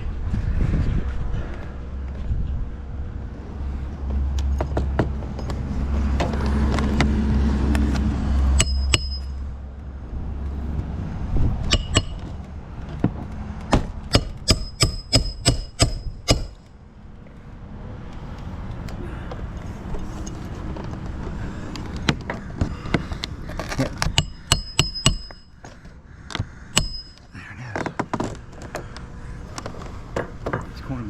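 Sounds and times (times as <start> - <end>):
hammer striking nails: 8.6 - 9.4, 11.7 - 12.3, 13.7 - 16.7, 24.0 - 25.6, 26.7 - 27.3.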